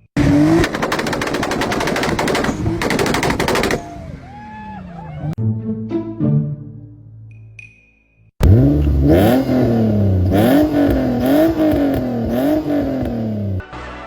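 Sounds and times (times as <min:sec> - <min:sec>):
car engine revving: 0:00.2 - 0:03.5, 0:08.4 - 0:13.6.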